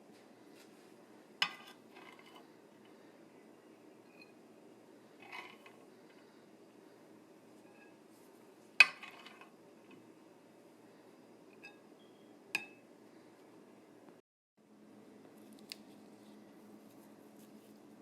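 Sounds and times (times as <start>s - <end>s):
low steady hum: 0.0s - 18.0s
spoon and dishes clinking: 11.6s - 11.8s.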